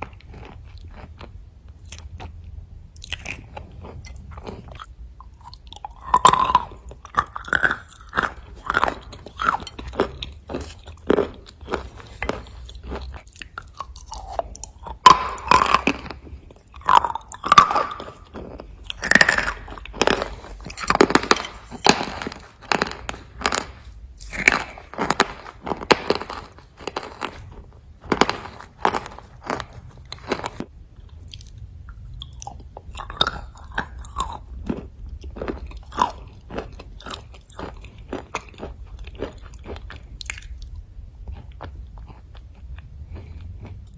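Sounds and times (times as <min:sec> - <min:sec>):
chewing with sharp crunches: 0:00.0 - 0:43.9.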